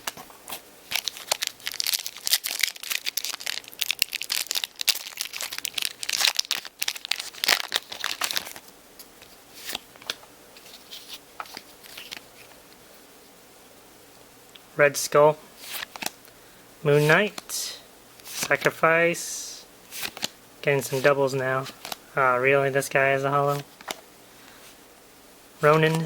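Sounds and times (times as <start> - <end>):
wrapper tearing and crinkling: 0.9 - 8.6.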